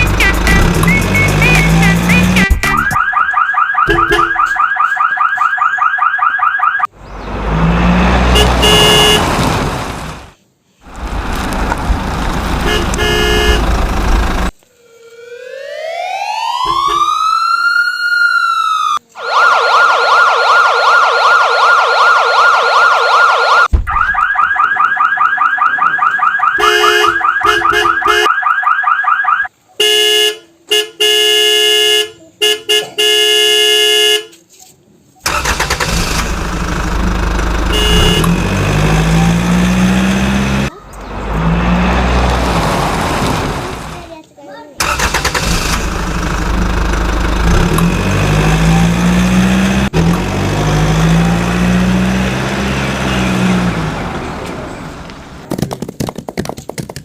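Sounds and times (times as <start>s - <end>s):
vehicle engine noise: 0.0s - 3.0s, 6.9s - 14.6s, 35.2s - 55.8s
pulsing siren: 0.5s - 6.9s, 14.7s - 29.5s
siren swooping: 0.7s - 9.2s, 14.7s - 29.5s
warbling siren: 2.7s - 6.9s, 14.7s - 29.5s.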